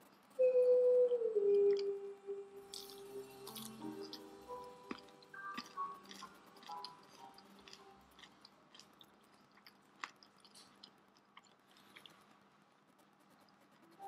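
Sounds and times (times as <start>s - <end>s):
clicking mouth sounds: 1.5s - 2.0s, 2.7s - 12.2s
faint chewing: 2.7s - 14.0s.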